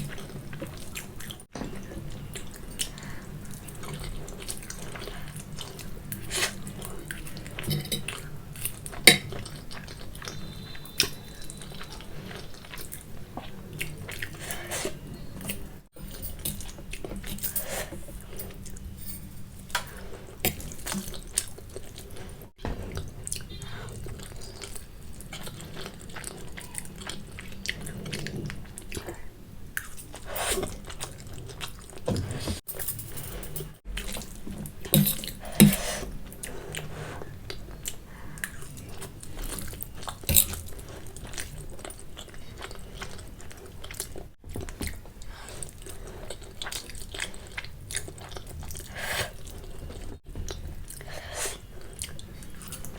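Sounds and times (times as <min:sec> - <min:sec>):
wet chewing and slurping noodles: 0:00.0 - 0:32.8, 0:33.7 - 0:52.9.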